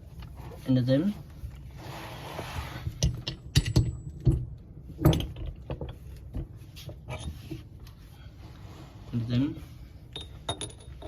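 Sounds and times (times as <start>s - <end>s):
metal parts clicking and knocking: 3.0s - 7.4s, 10.1s - 11.0s.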